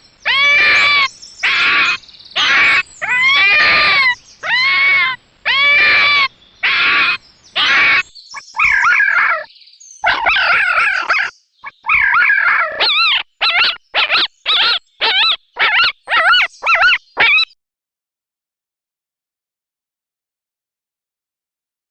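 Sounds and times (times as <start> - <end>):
high-pitched animal cries: 0.2 - 17.6.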